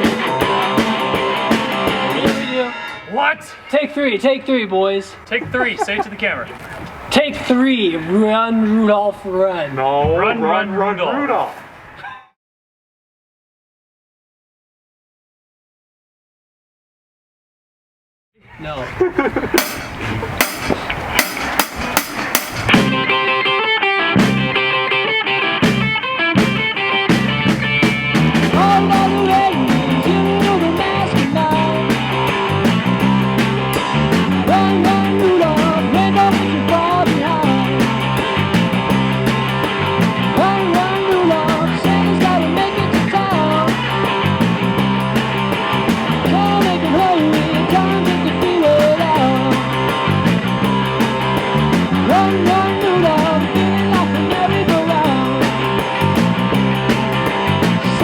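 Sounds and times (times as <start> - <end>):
drum kit: 0.0 - 3.1, 19.4 - 23.4, 24.2 - 24.7, 25.6 - 58.0
electric bass pattern: 19.6 - 23.4, 24.2 - 24.7, 25.6 - 58.0
electric guitar lead lines: 22.7 - 58.0.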